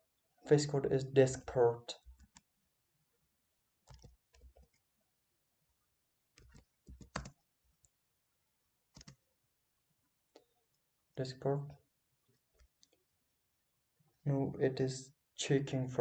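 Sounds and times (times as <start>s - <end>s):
keyboard keys typing: 2.0s - 2.5s, 3.9s - 4.8s, 6.4s - 7.4s, 8.9s - 9.2s.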